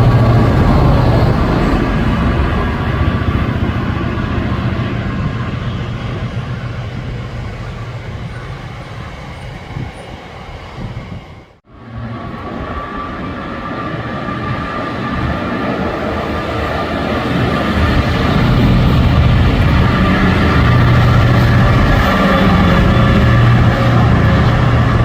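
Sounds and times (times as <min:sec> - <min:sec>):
train running past: 0:00.0 - 0:25.0.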